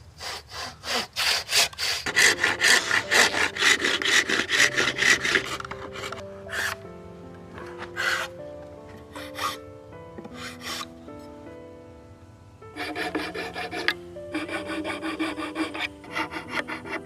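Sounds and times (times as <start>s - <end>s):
hand tool rasping on wood: 0.0s - 6.8s, 7.6s - 8.3s, 9.1s - 9.6s, 10.3s - 10.9s, 12.8s - 17.0s.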